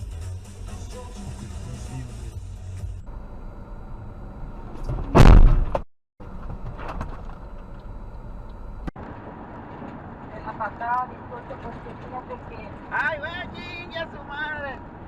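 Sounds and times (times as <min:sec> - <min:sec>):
road noise: 0:00.0 - 0:15.0
car crash bang: 0:04.7 - 0:07.4.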